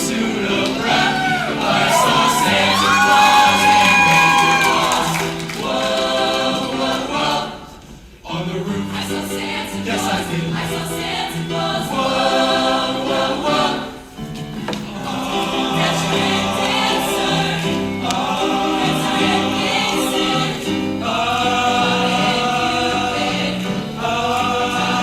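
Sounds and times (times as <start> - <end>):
choir singing: 0.0 - 25.0.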